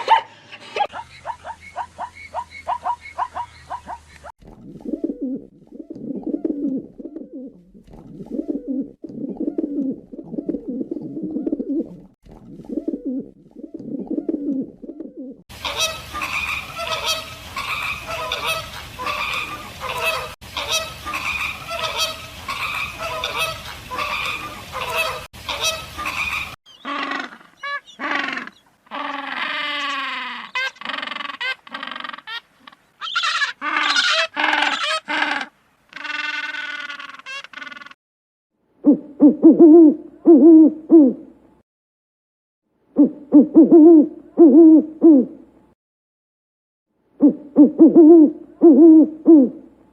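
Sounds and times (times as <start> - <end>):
overlapping high animal calls: 15.6 - 38.0.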